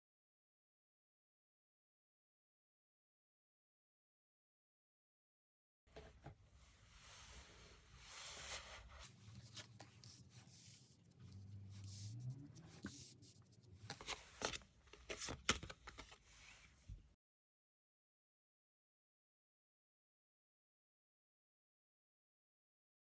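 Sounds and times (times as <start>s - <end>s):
cards rustling and shuffling: 9.0s - 16.5s.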